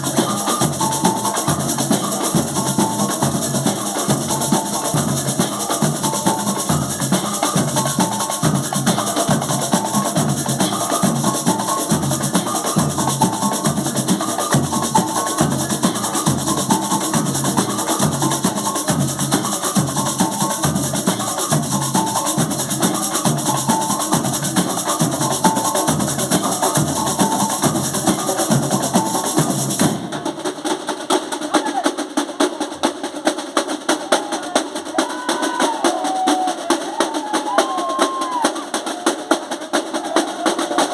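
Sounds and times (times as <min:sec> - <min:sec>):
drums and hand percussion groove: 0:00.0 - 0:40.9.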